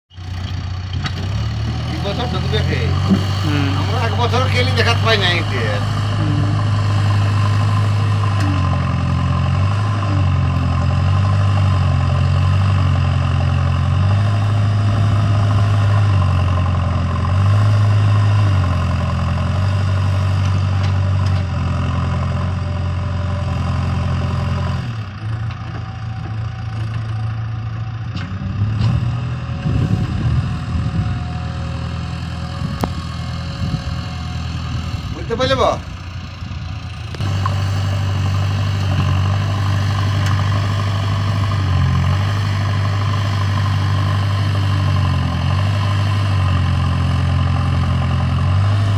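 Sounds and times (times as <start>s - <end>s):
engine knocks: 0.1s - 12.8s, 32.5s - 45.8s
heavy diesel machinery engine: 0.1s - 48.9s.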